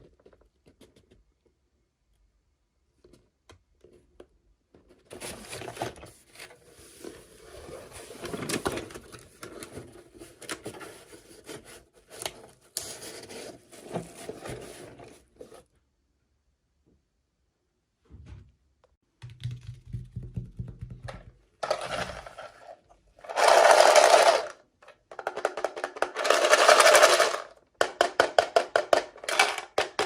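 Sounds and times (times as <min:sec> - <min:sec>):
toy packaging crinkling: 0:23.2 - 0:27.6.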